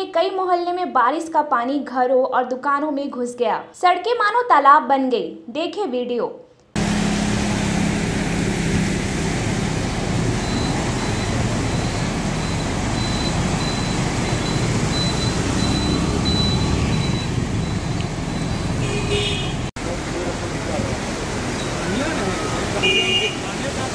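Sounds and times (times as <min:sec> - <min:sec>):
motorcycle and car engines: 0:06.8 - 0:23.9
tyres splashing through water: 0:06.8 - 0:23.9.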